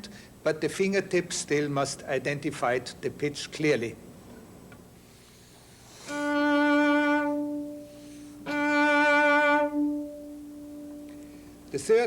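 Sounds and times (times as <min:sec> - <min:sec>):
cello bowing sustained note: 0:06.0 - 0:11.6.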